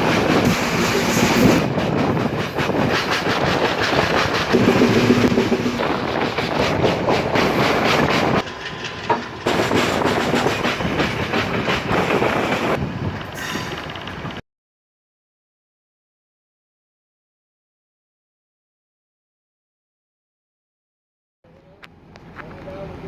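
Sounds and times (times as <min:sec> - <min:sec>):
train wheels clattering over rails: 0:00.0 - 0:14.4.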